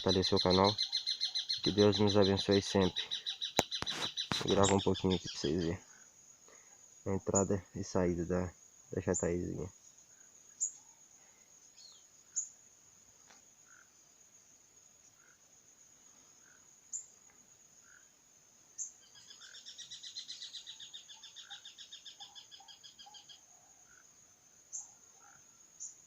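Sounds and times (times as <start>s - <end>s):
sharp chirps: 0.0s - 5.9s
rapid pulsed trilling call: 0.0s - 12.7s, 17.8s - 26.0s.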